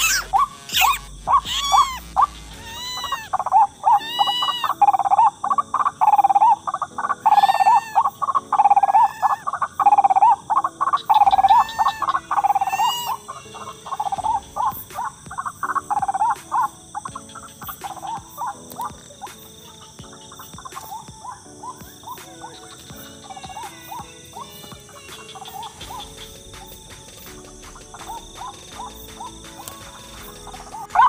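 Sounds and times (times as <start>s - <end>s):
waterhen croaking calls: 0.0s - 31.0s.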